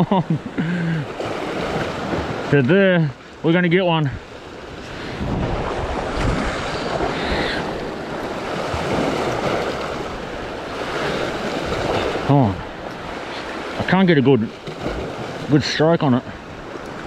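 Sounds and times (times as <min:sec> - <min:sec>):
sea waves washing against rocks: 0:00.2 - 0:17.0
wind buffeting microphone: 0:04.2 - 0:13.3.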